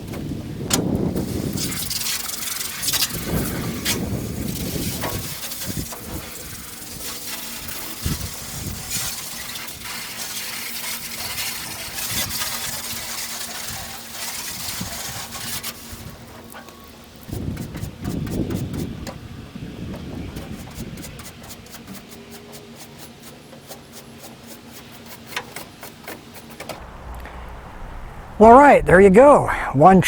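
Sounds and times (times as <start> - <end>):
hose spraying into truck bed: 0.7 - 19.1
faint steady hum: 26.8 - 30.0.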